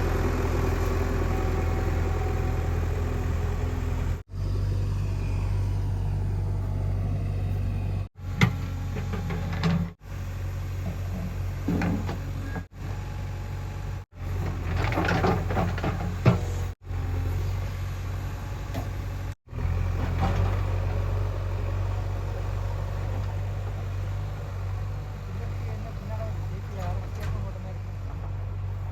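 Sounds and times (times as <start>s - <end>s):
diesel engine running: 0.0s - 28.9s.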